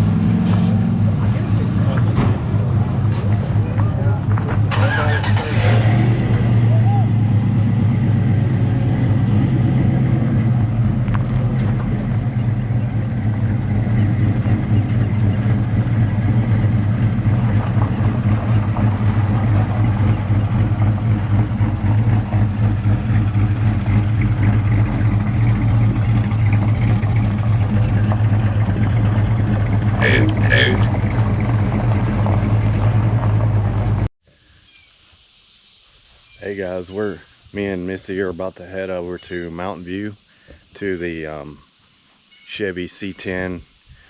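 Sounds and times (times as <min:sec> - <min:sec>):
vehicle engine running steadily: 0:00.0 - 0:34.1.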